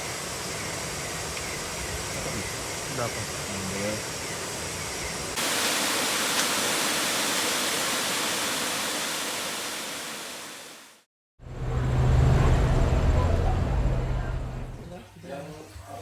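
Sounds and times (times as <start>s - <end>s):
waterfall rushing: 5.4s - 11.0s.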